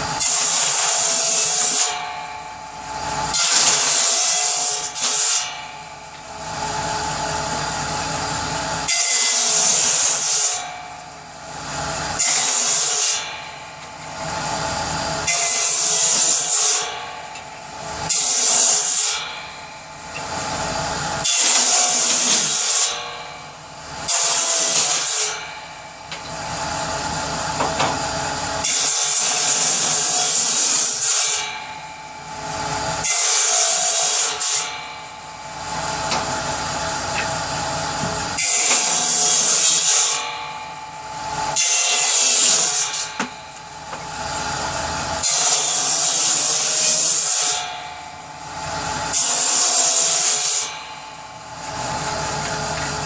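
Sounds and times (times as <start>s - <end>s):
power saw cutting wood: 0.0s - 53.0s.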